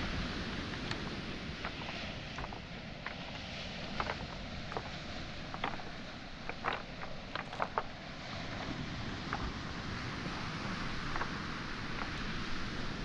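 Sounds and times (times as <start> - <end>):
waves on shore: 0.0 - 13.0
wind: 0.0 - 13.0
footsteps on pebbles: 1.6 - 9.6, 10.6 - 12.2.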